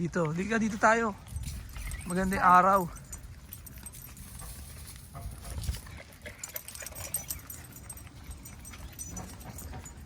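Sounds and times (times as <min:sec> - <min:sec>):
faint dog noises: 0:04.3 - 0:10.0.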